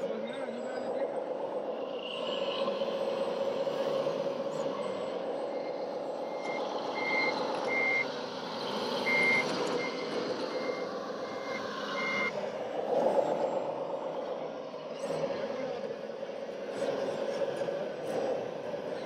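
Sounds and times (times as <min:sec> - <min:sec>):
truck engine hum: 0:00.0 - 0:19.0
reversing beeper: 0:02.3 - 0:12.6.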